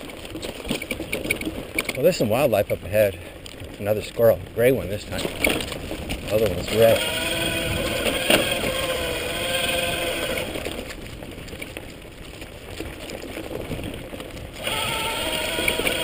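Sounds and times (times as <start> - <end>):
rattling trail noise: 0.0 - 16.0
electric motor whining: 6.6 - 10.9, 14.6 - 16.0.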